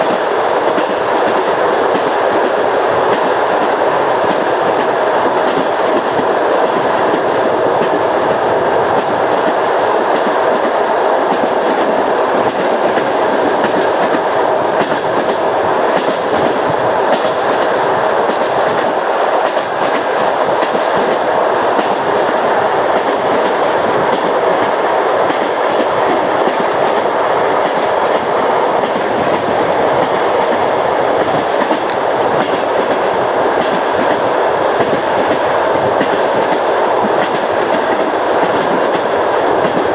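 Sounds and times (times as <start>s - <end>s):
train wheels rumbling on rails: 0.0s - 39.9s
wheels clacking over rail joints: 21.8s - 39.9s.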